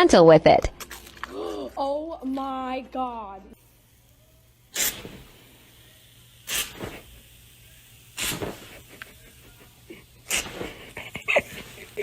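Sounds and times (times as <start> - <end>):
dog breathy bursts: 10.2 - 12.0.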